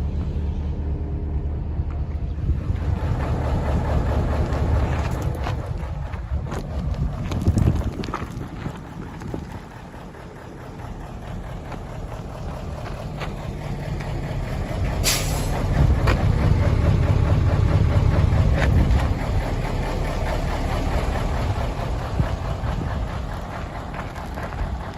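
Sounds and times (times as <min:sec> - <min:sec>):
diesel truck engine rumbling: 0:00.0 - 0:24.9
short hiss: 0:15.0 - 0:15.5.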